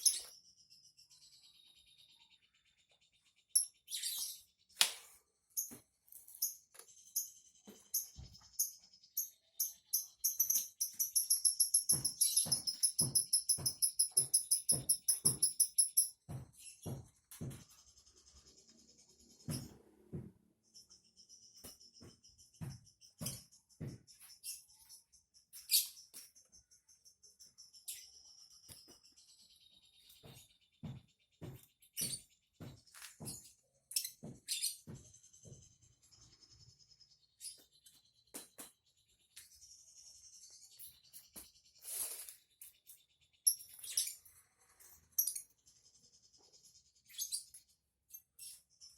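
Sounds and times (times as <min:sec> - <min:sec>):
songbird chirping: 0:00.0 - 0:48.9
bird tapping and thumping in cage: 0:11.2 - 0:17.8, 0:19.5 - 0:20.4.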